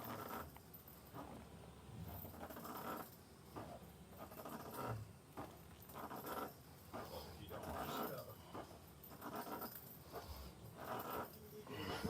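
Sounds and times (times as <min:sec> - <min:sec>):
man breathing hard: 0:11.7 - 0:12.0.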